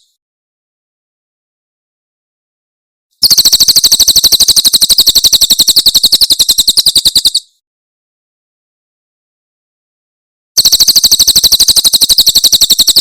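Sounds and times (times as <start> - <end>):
bird singing fast trill: 3.2 - 7.6, 10.6 - 13.0.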